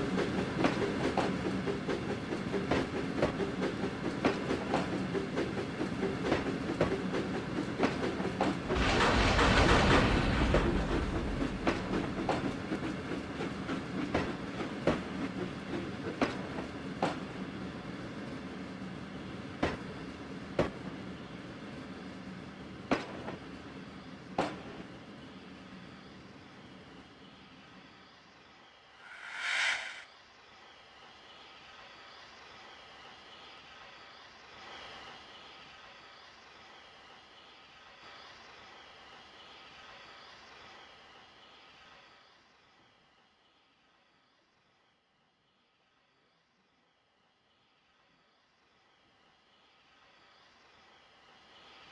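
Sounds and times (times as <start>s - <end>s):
train wheels clicking on rails: 0.0s - 25.6s
loud rushing surge: 29.0s - 30.0s.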